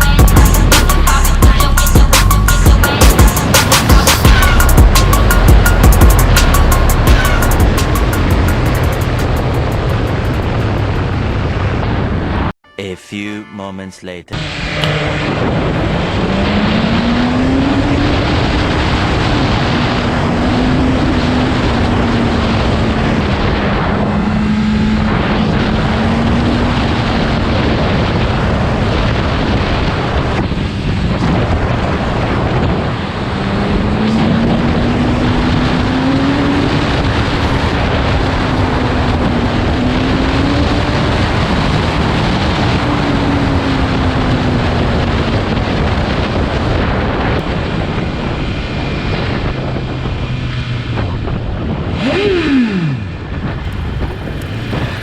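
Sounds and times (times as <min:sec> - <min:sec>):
wind rush on microphone: 0:02.8 - 0:12.6, 0:14.9 - 0:55.0
motorcycle engine revving: 0:14.4 - 0:55.0.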